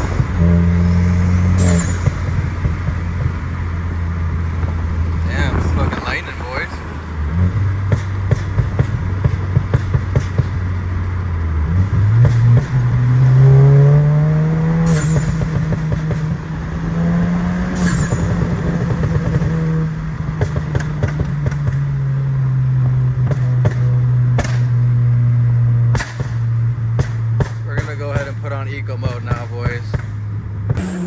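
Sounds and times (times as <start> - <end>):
car exhaust drone: 0.0 - 31.0
exhaust crackles: 0.0 - 31.0.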